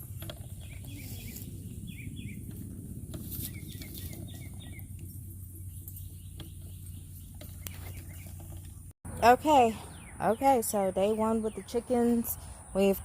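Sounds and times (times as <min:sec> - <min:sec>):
steady low rumble: 0:00.0 - 0:10.4
birds chirping: 0:00.0 - 0:13.0.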